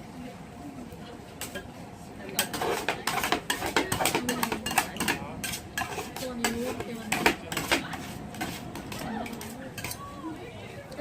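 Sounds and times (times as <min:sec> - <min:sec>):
metal spatulas scraping steel plate: 0:02.4 - 0:10.0.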